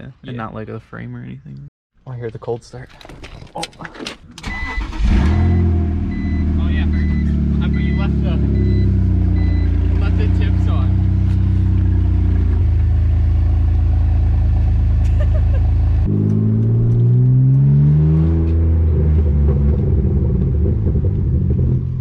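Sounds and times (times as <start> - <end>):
car engine idling: 4.8 - 16.1.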